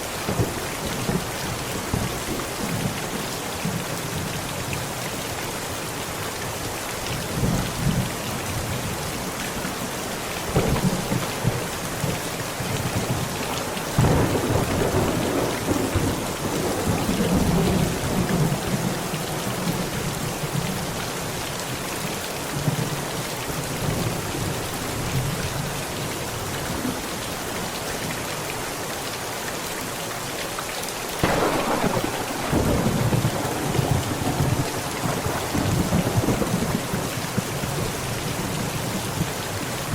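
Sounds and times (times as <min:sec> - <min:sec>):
heavy rain on a tent: 0:00.0 - 0:39.9
thunder rolling: 0:13.9 - 0:18.7, 0:31.2 - 0:37.9.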